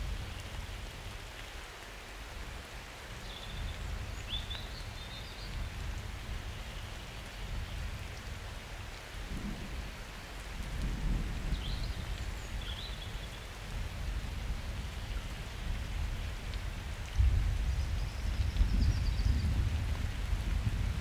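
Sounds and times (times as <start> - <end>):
rain falling: 0.0 - 21.0
distant thunder rumble: 9.2 - 14.4.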